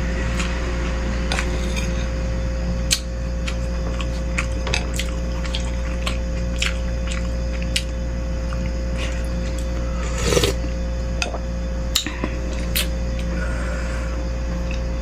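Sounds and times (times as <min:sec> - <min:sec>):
steady low hum: 0:00.0 - 0:15.0
wet chewing and mouth smacks: 0:02.9 - 0:09.7.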